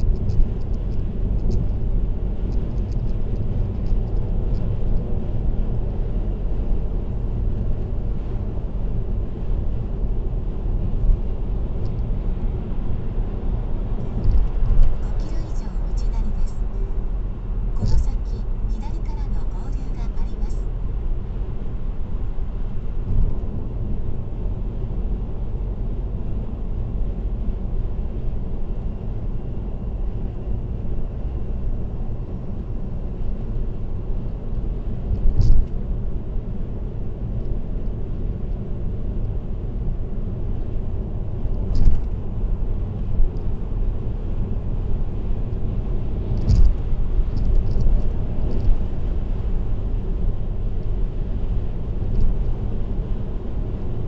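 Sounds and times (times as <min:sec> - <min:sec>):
road and tyre rumble: 0:00.0 - 0:54.0
small ticks: 0:46.4 - 0:46.8, 0:47.4 - 0:48.7.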